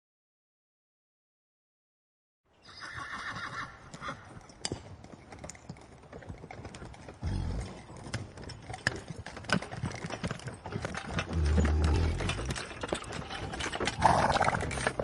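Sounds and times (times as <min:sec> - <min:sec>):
horse whinnying: 0:02.6 - 0:04.3, 0:13.4 - 0:15.0
hooves knocking and clicking: 0:03.0 - 0:15.0.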